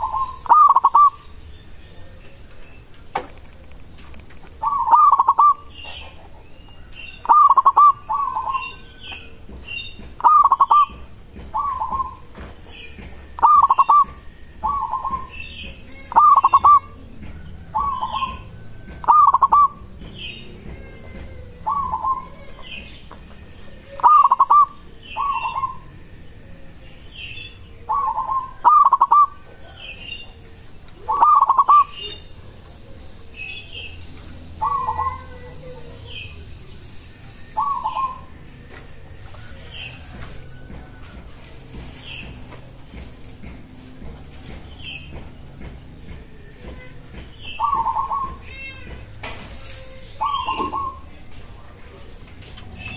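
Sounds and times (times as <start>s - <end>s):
dove cooing: 0.0s - 1.3s, 4.5s - 9.4s, 10.1s - 12.4s, 13.0s - 25.9s, 27.8s - 36.3s, 37.5s - 38.3s, 47.5s - 48.4s, 50.1s - 51.2s
small birds chirping: 0.0s - 52.9s.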